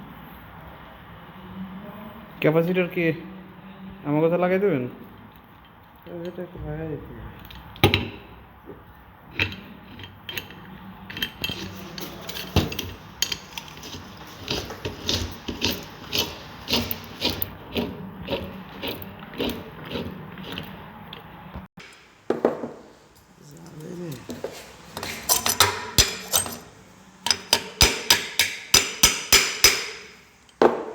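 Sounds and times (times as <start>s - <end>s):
screwdriver clicking and scraping: 9.4s - 21.2s, 24.9s - 30.6s.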